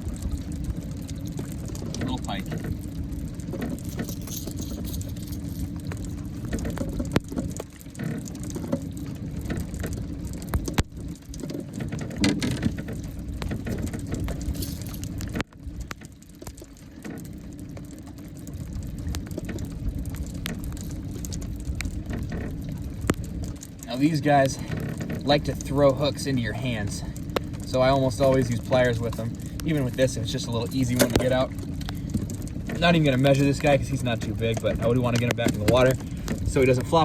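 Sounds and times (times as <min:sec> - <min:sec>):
light rain pattering: 0:00.0 - 0:37.0
steady low rumble: 0:00.0 - 0:37.0
sharp clicks and knocks: 0:30.8 - 0:33.4.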